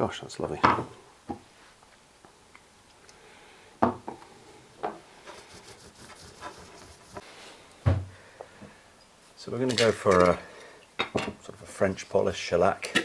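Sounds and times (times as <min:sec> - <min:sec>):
faint rubbing: 0:05.1 - 0:07.5.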